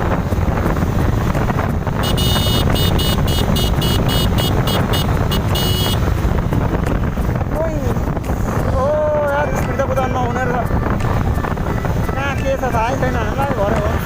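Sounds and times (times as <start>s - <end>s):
road drone: 0.0s - 14.0s
wind rushing over microphone: 0.0s - 14.0s
electronic horn short beeps: 2.0s - 6.0s.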